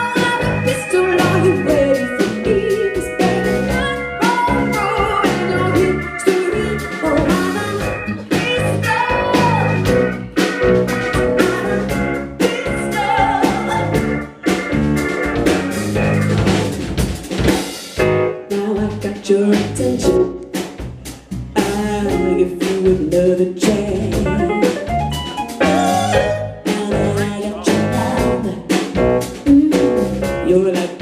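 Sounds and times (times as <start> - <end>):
melodic lead line: 0.0 - 18.5, 23.8 - 29.2
bass guitar: 0.0 - 31.0
drum kit beat: 0.0 - 31.0.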